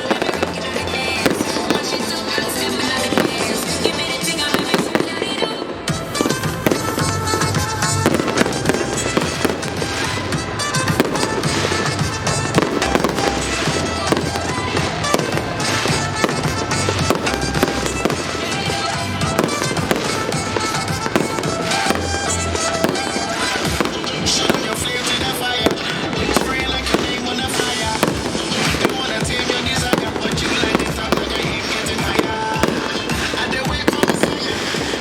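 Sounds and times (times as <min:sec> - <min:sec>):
fireworks bangs and crackles: 0:00.0 - 0:35.0
music with low bass: 0:10.4 - 0:18.2.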